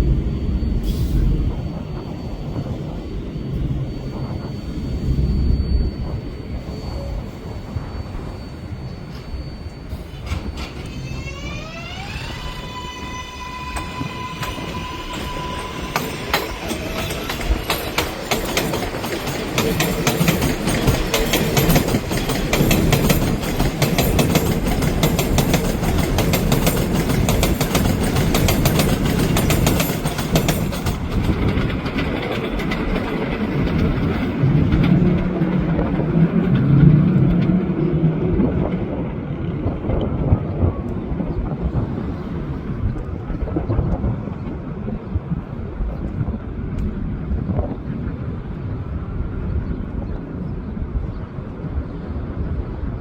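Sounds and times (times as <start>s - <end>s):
electric motor whine: 0.0s - 18.4s
train rumble: 0.0s - 53.0s
train wheels clattering: 10.0s - 38.0s.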